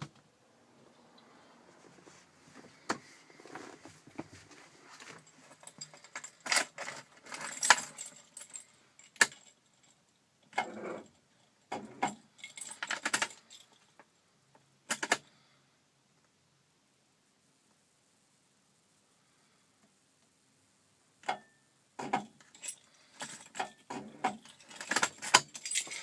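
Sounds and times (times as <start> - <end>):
keys jangling: 22.4 - 26.0.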